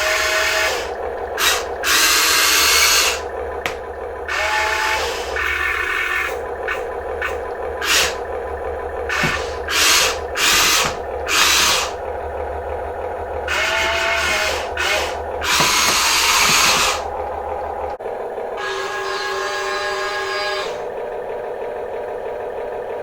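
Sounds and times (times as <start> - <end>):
small electric motors whirring: 0.0 - 21.2
steady low hum: 0.0 - 23.0.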